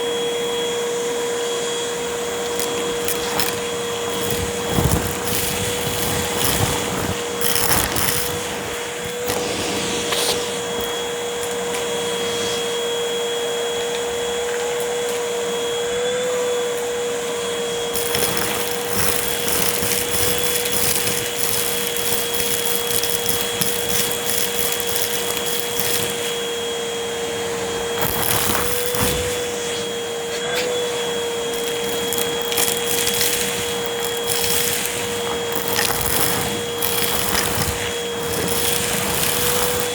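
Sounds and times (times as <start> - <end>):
vacuum cleaner motor whine: 0.0 - 39.9
debris crackling and rattling: 2.3 - 9.6, 17.8 - 26.6, 27.9 - 29.6, 31.4 - 39.9.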